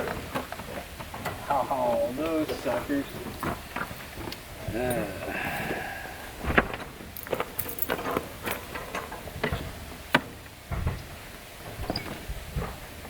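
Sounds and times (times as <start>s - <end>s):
hand tools clinking on metal: 4.7s - 5.5s, 7.2s - 9.2s.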